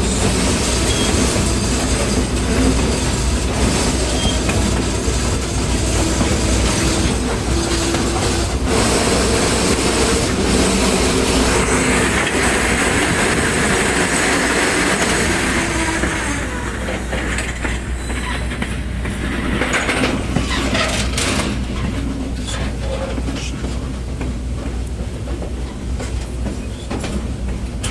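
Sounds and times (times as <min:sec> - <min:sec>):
wheels squealing: 0:00.0 - 0:18.7
train wheels rumbling: 0:00.0 - 0:27.9.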